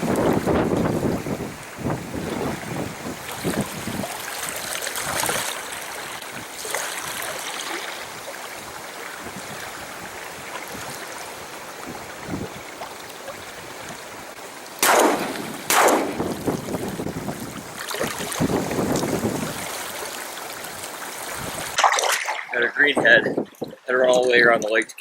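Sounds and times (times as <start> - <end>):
wind on microphone: 0.0 - 4.3, 8.1 - 14.0, 15.2 - 19.8, 21.3 - 21.8, 22.5 - 24.7
shotgun shots: 14.8 - 16.3.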